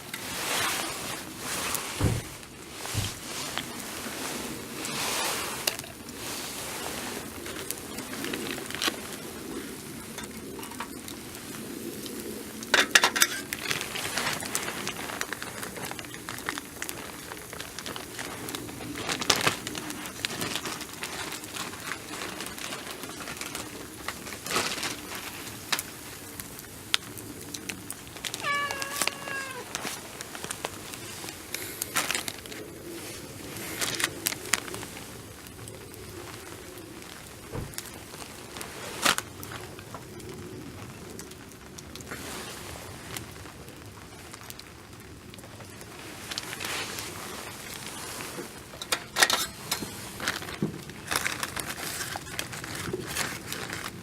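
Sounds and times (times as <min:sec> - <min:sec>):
cat meowing: 0:28.3 - 0:29.9.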